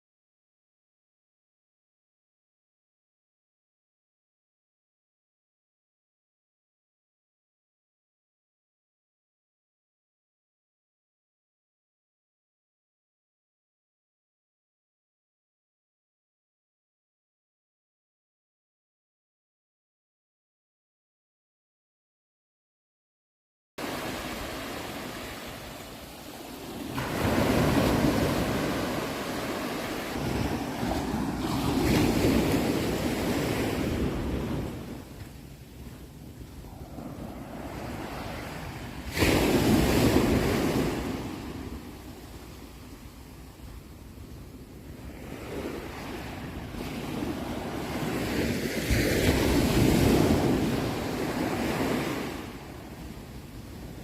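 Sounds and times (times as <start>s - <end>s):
ocean waves washing ashore: 23.8s - 54.0s.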